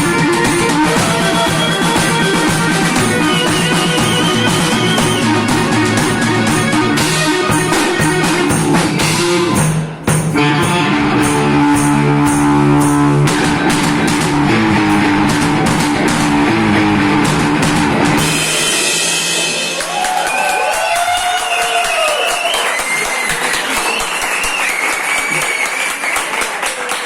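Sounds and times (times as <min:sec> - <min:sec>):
electric guitar: 0:00.0 - 0:20.3
drum kit beat: 0:00.0 - 0:23.9.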